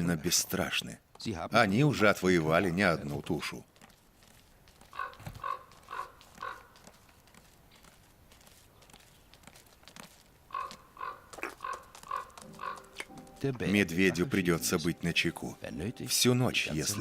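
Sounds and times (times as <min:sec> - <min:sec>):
short animal calls: 0:04.9 - 0:06.8, 0:10.5 - 0:13.1.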